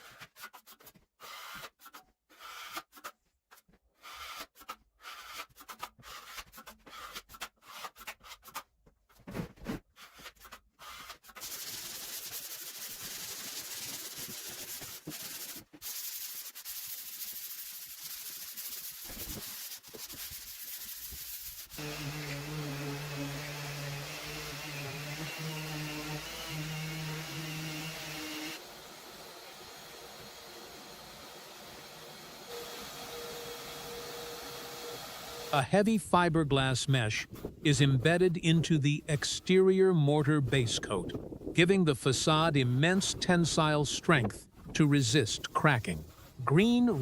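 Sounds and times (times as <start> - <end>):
taping knife scraping compound: 0.0 - 8.7, 9.7 - 28.6
sanding hiss: 11.4 - 35.5
electric motor humming: 21.8 - 28.6.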